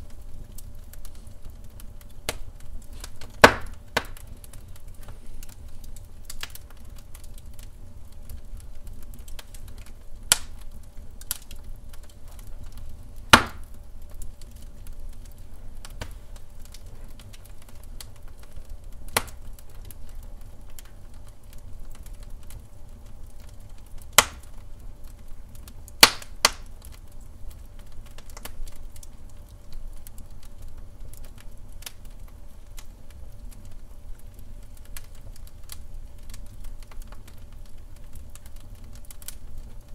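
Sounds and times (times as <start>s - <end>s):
fire crackling and popping: 0.0s - 39.9s
wood fire rumbling: 0.0s - 39.9s.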